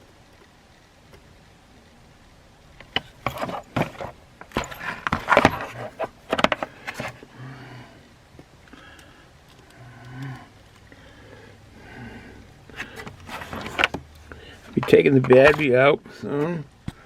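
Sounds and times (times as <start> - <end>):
plastic parts clicking and rattling: 2.8 - 7.2, 12.7 - 15.8.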